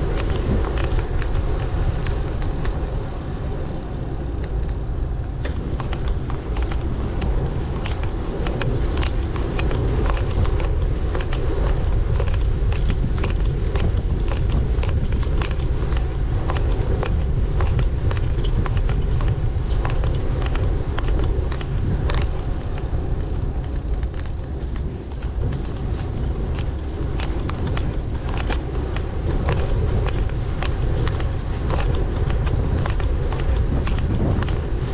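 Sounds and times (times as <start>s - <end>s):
bicycle clicks and rattles: 0.0s - 34.9s
road and wind rumble: 0.0s - 34.9s.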